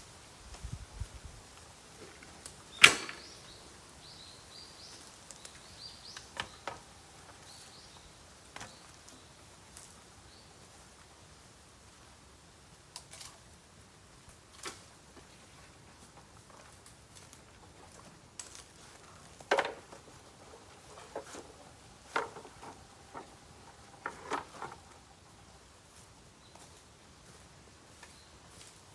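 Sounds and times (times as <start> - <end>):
bamboo fire cracking and popping: 12.6 - 26.1.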